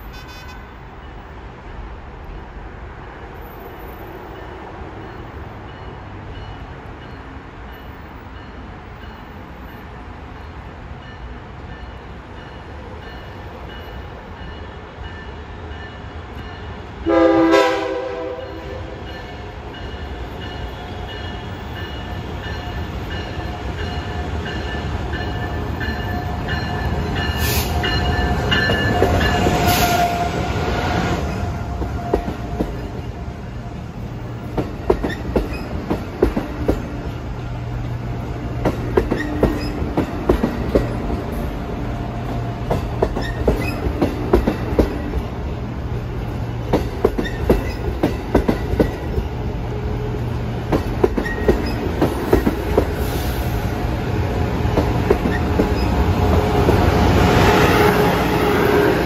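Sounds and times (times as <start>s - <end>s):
train rumbling: 0.0s - 59.0s
train horn blast: 17.0s - 19.1s, 29.3s - 32.7s, 56.3s - 59.0s.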